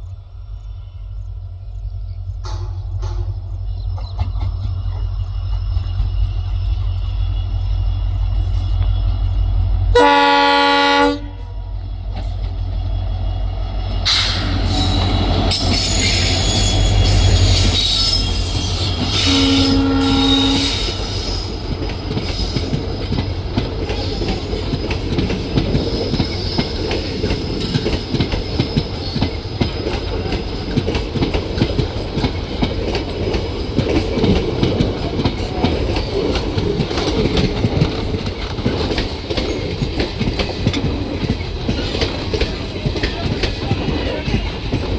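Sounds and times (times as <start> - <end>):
deep train rumble: 0.0 - 44.9
train horn blasts: 9.9 - 11.7, 14.0 - 21.4
high metallic hiss: 14.1 - 23.0
wheels clattering over rail joints: 20.7 - 44.9.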